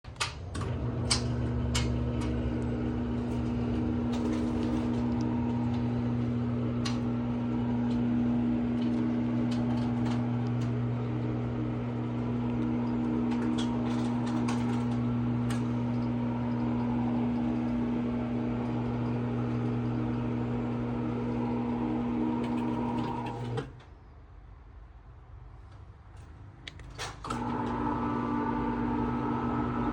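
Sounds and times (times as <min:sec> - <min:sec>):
screen motor humming: 0:00.6 - 0:23.7, 0:27.4 - 0:29.9.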